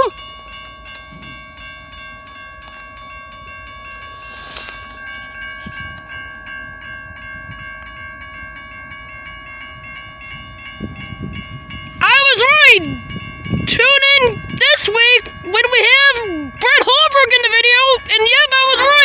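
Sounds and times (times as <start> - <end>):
railroad crossing bell ringing: 0.0 - 19.0
train rumbling on tracks: 0.0 - 19.0
brief hiss: 4.2 - 4.8.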